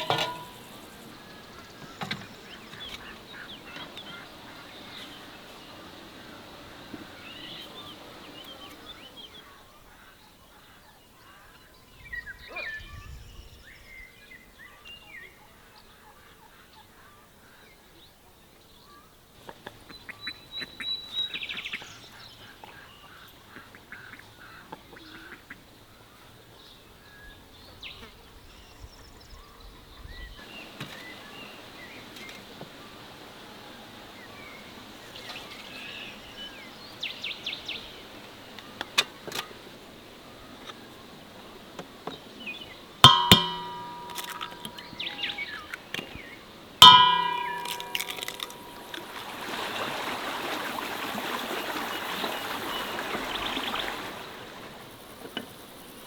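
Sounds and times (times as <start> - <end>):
sharp clicks and knocks: 43.1 - 45.0.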